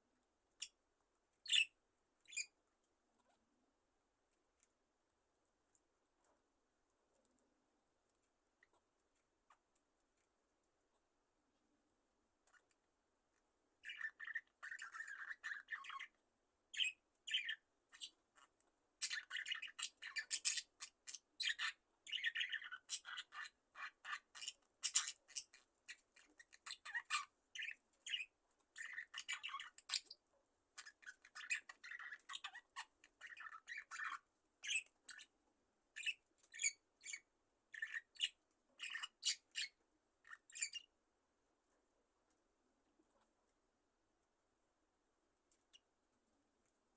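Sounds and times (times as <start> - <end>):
budgerigars chirping and chattering: 1.4 - 2.5, 13.8 - 16.1, 16.8 - 30.2, 30.8 - 35.3, 36.0 - 40.9.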